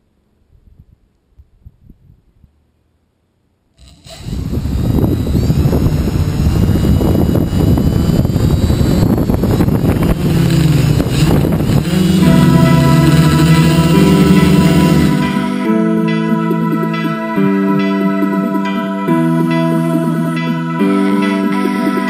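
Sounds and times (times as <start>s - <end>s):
quadcopter motors buzzing: 3.8s - 15.8s.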